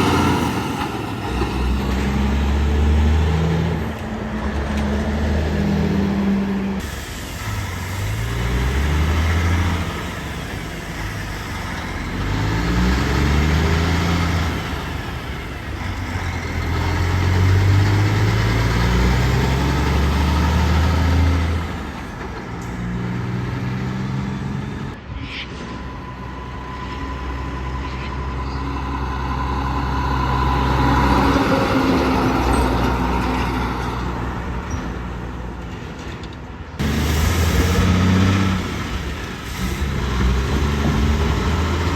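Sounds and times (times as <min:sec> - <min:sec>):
diesel truck engines accelerating: 0:00.0 - 0:41.9
air brake hiss: 0:06.8 - 0:11.6.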